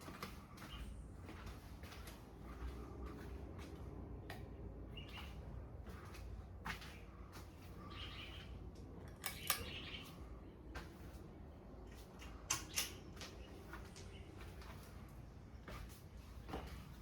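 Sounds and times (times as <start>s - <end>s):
sharp clicks: 12.2s - 13.0s.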